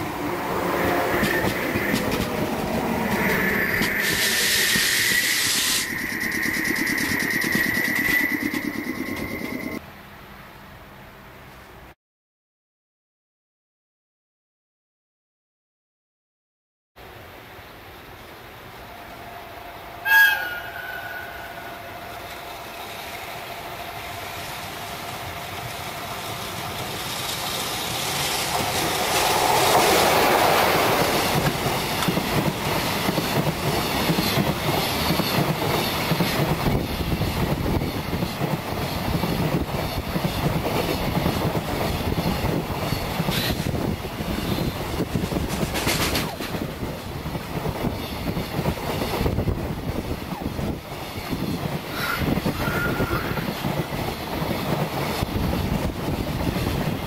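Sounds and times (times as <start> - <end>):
locomotive rumble: 0.0 - 9.8
locomotive whistle blast: 3.3 - 9.8, 20.0 - 22.2, 51.9 - 53.4
wheels clattering over rail joints: 26.6 - 47.1.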